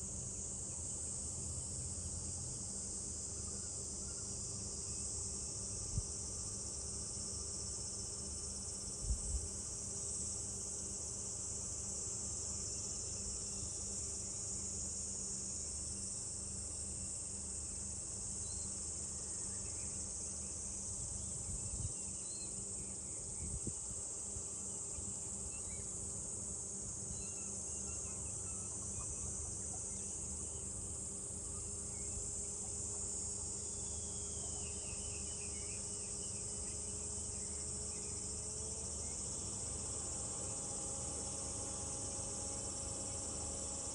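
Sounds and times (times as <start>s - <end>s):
cicadas droning: 0.0s - 43.9s
faint bird chirps: 27.1s - 30.8s, 33.7s - 38.2s.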